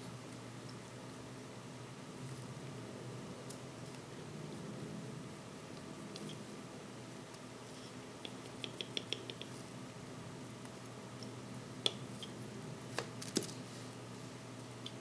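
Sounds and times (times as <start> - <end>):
small tool clicks and taps: 8.2 - 9.5.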